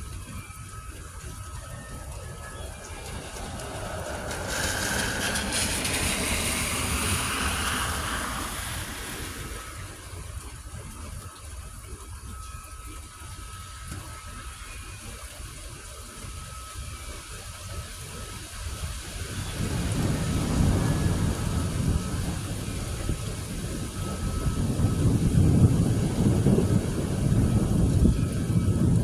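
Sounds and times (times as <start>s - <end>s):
wind noise: 0.0s - 29.0s
heavy rain: 1.4s - 10.8s, 18.3s - 29.0s
car tyres hissing on wet road: 2.0s - 10.8s, 17.5s - 29.0s.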